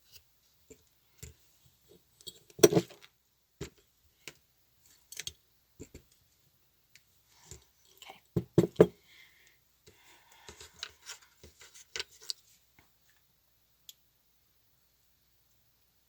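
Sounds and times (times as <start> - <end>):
light clicks and rubbing: 10.6 - 13.2.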